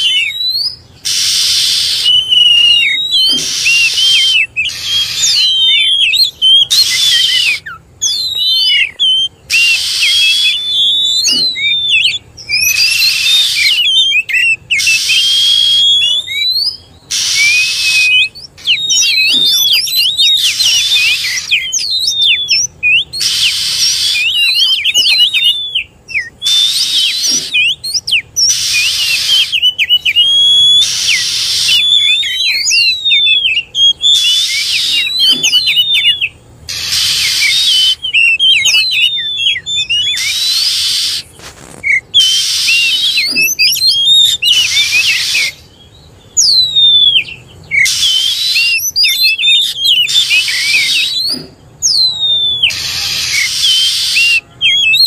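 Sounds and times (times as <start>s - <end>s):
bird whistling song: 0.0s - 55.0s
harsh raspy bird calls: 0.0s - 55.0s.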